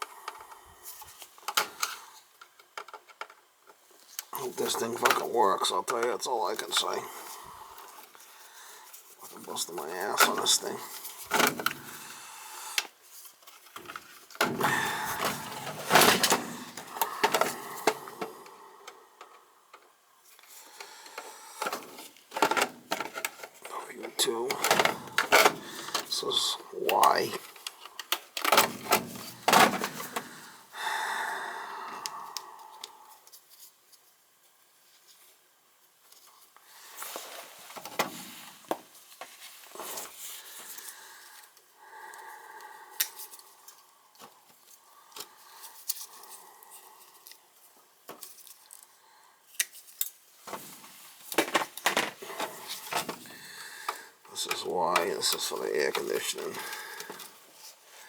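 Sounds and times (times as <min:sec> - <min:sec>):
hands rustling and scraping wires: 0:00.0 - 0:30.5, 0:42.9 - 0:58.0.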